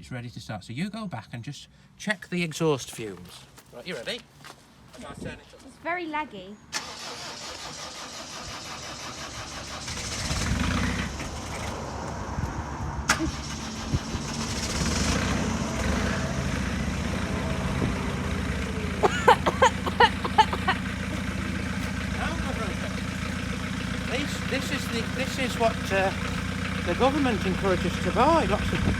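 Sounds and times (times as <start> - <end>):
diesel engine starting and idling: 6.7 - 28.9.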